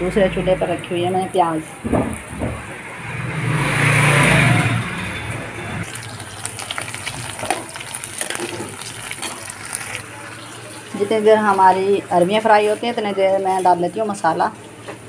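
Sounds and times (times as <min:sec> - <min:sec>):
food frying in hot oil: 0:05.8 - 0:15.0
rapid small crackles: 0:05.9 - 0:10.6.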